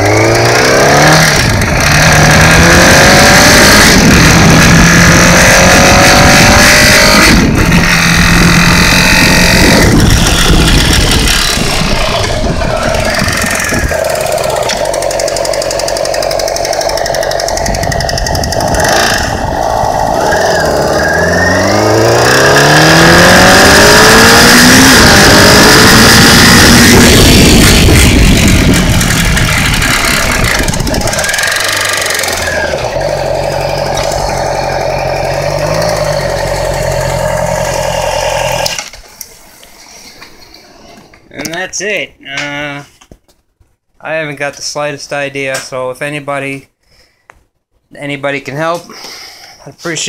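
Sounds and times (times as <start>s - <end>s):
motorcycle engine revving: 0.0s - 39.3s
engine ticking noise: 6.6s - 20.3s.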